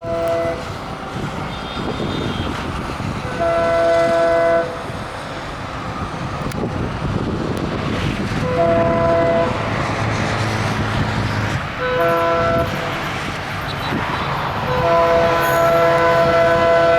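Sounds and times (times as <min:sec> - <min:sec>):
locomotive air horn blasts: 0:00.0 - 0:05.0, 0:08.4 - 0:09.8, 0:11.8 - 0:16.9
train rumble: 0:00.0 - 0:16.9.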